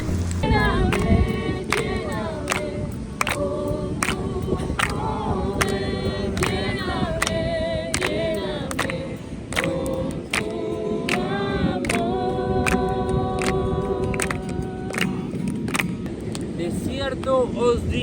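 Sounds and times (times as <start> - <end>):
voices singing slow melody: 0.0 - 16.7.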